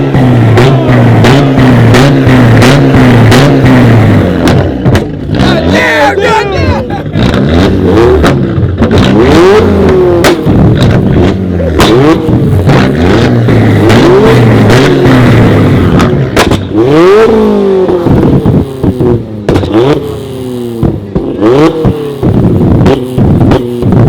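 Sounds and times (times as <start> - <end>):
cars revving and accelerating: 0.0 - 24.0
low engine rumble: 0.0 - 24.0
sharp cracks: 7.2 - 24.0.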